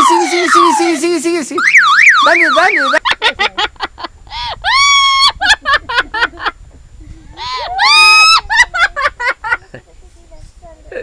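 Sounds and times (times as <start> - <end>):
parrot shrill screeching calls: 7.5 - 8.4.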